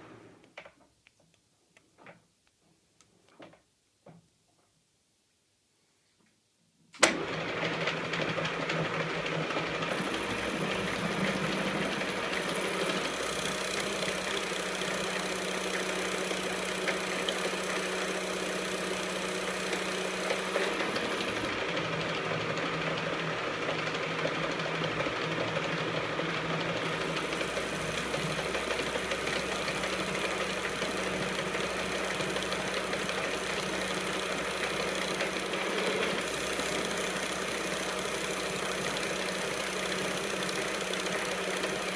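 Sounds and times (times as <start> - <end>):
metal lathe humming: 9.9 - 21.6, 26.8 - 41.9.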